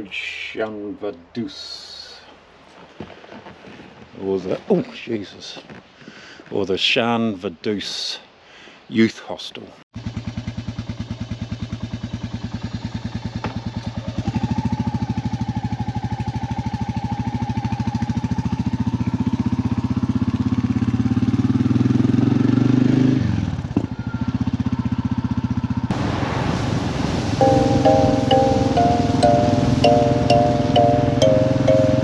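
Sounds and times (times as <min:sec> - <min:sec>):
motorcycle engine revving: 0:10.0 - 0:23.7.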